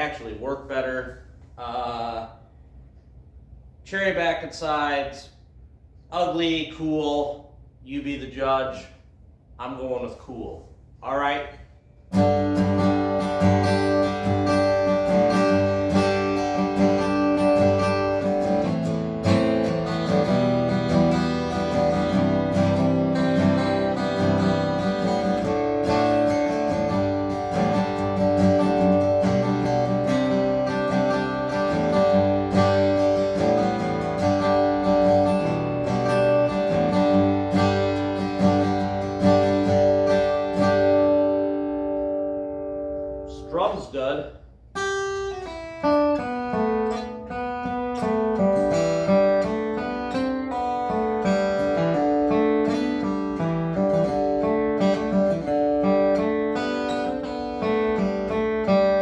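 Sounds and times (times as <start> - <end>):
acoustic guitar strumming chords: 12.1 - 59.0.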